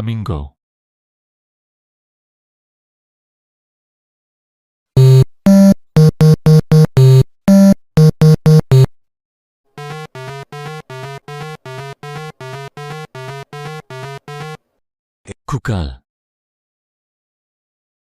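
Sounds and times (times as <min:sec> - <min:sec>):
buzzy synth beeps: 0:05.0 - 0:08.9, 0:09.8 - 0:14.6
synthesizer jingle: 0:05.0 - 0:08.9, 0:09.8 - 0:14.6.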